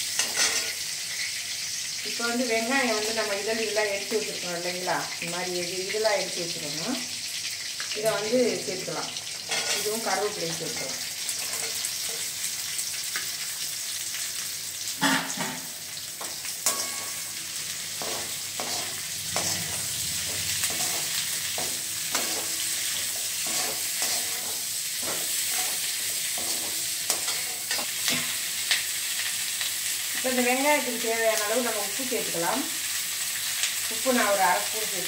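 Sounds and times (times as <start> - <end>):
onions sizzling in oil: 0.0 - 35.0
ladle scraping metal pan: 9.5 - 9.9, 20.6 - 28.2.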